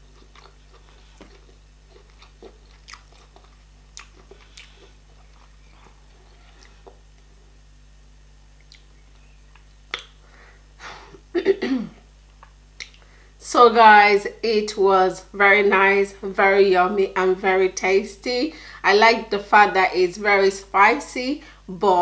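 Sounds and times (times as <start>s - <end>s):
close chewing with wet clicks: 0.0s - 7.3s, 8.6s - 10.2s, 12.4s - 13.0s
lip smacks: 0.3s - 7.3s, 8.6s - 10.2s, 12.4s - 13.1s.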